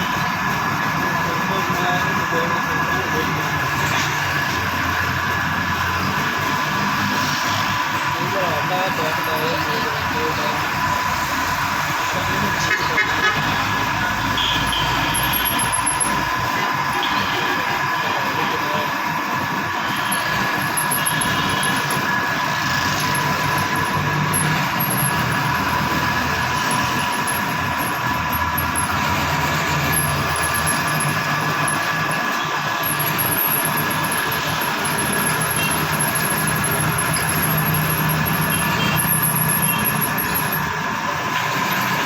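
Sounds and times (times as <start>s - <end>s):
power tool motor whirring: 19.9s - 40.7s.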